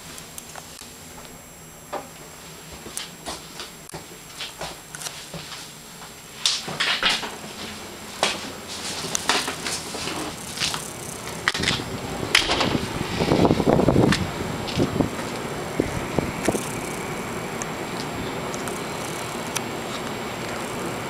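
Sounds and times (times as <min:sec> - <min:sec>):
rushing noise: 0:09.7 - 0:21.0.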